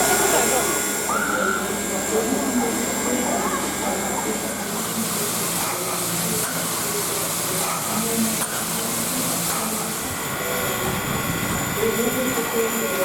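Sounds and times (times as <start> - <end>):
faint voices: 0.0 - 13.0
steam hissing from locomotive: 0.0 - 13.0.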